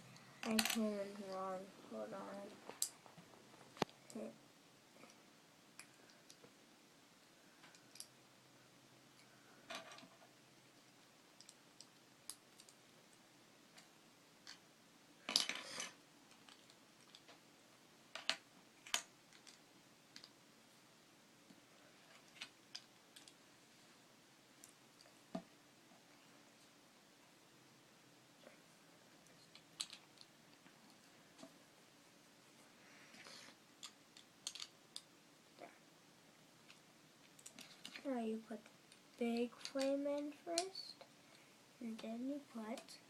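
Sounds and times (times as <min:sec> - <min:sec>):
plastic bricks clicking: 0:29.5 - 0:30.3, 0:33.8 - 0:35.1.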